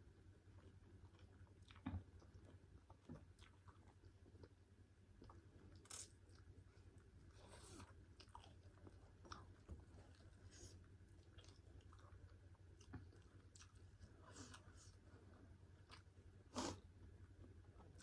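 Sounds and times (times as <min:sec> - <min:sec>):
person chewing: 0:00.6 - 0:04.6, 0:05.2 - 0:15.0.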